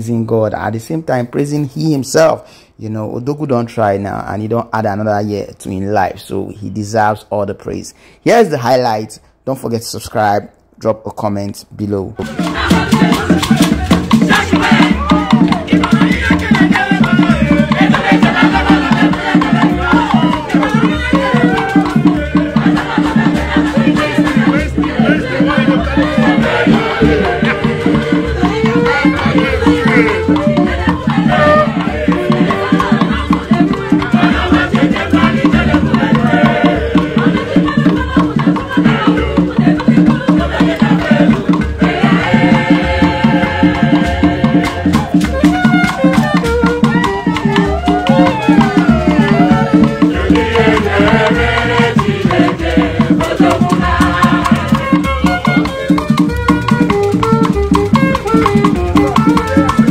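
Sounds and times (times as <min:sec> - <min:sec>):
drums: 0:12.2 - 0:59.9
people singing: 0:12.2 - 0:59.9
shakers: 0:12.2 - 0:59.9.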